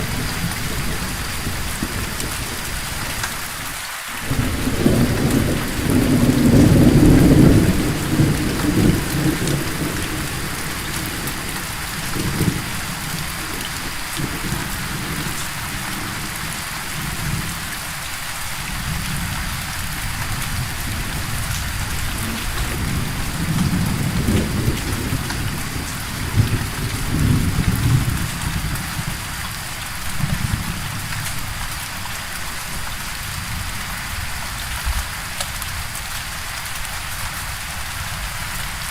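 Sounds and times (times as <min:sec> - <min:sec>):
thunder rumbling: 0:00.0 - 0:03.5, 0:04.2 - 0:17.7, 0:18.8 - 0:29.5
steady rain: 0:00.0 - 0:38.9.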